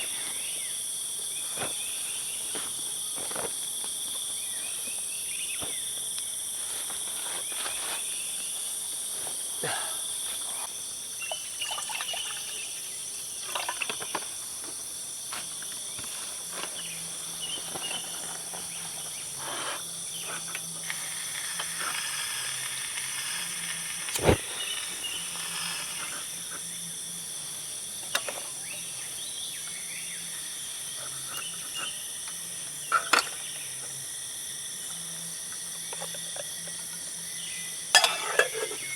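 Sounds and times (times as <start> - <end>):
crickets and insects trilling: 0.0 - 38.9.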